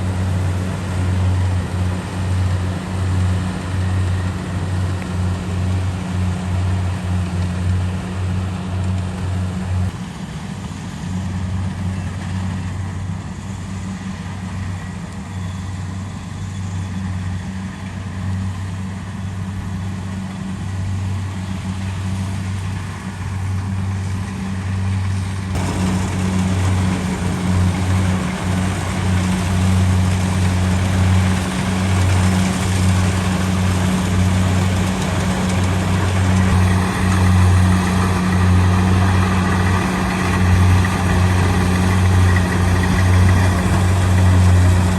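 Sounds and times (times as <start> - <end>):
diesel engine humming: 0.0 - 11.9, 17.3 - 44.9
machine rush: 25.5 - 44.9.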